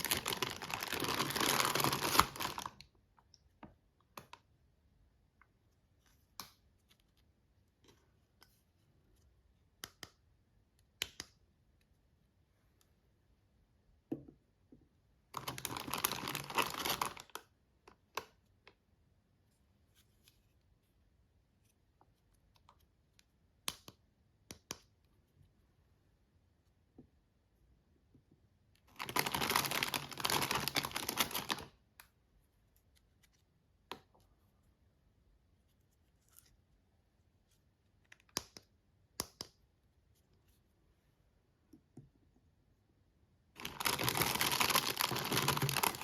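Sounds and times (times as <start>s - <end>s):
packaging rustling: 0.0s - 2.8s, 15.4s - 17.2s, 28.9s - 31.7s, 43.6s - 46.0s.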